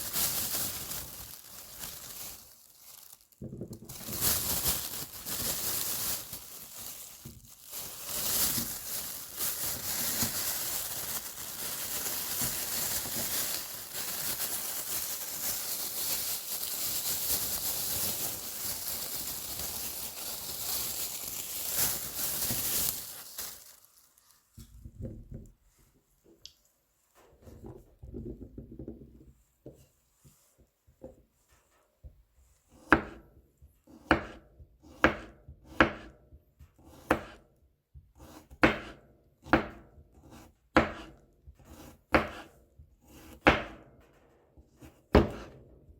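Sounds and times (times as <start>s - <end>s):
garlic skins crackling and rustling: 0.0s - 24.7s
knife chops on cutting board: 34.0s - 36.1s.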